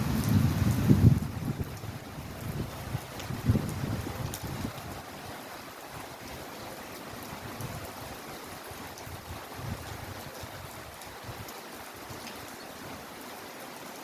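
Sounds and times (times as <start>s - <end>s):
low gusty rumbles: 0.0s - 4.8s
heavy rain falling: 0.0s - 14.0s.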